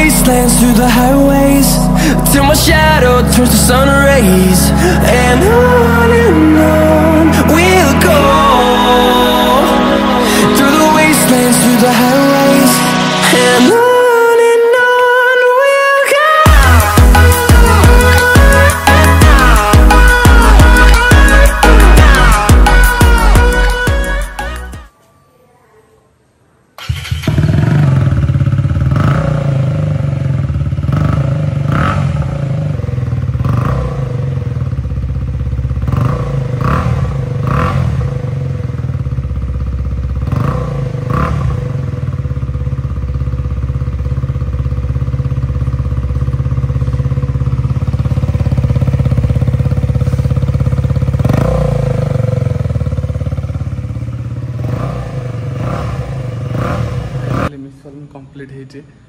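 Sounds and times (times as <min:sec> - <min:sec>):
motorcycle engine idling: 0:00.0 - 0:13.6, 0:16.5 - 0:24.1, 0:26.8 - 0:57.6.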